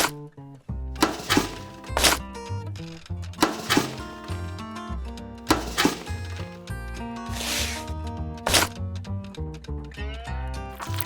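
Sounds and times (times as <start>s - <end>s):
sharp percussive hits: 1.0s - 2.2s, 3.4s - 4.7s, 5.5s - 6.6s.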